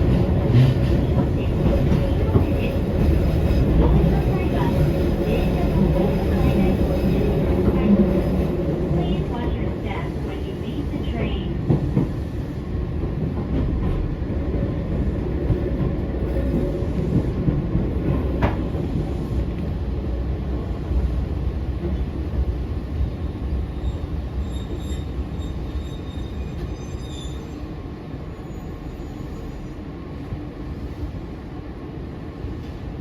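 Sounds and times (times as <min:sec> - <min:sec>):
train wheels rumbling on track: 0:00.0 - 0:33.0
high-pitched wheel squeal: 0:23.9 - 0:27.6.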